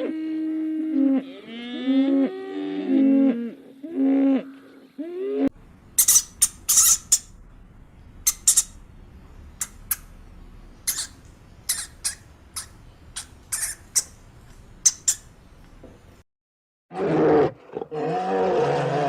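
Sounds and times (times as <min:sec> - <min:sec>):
small animal squeaking: 0:06.0 - 0:07.3, 0:08.2 - 0:08.8, 0:10.8 - 0:14.2, 0:14.8 - 0:15.3.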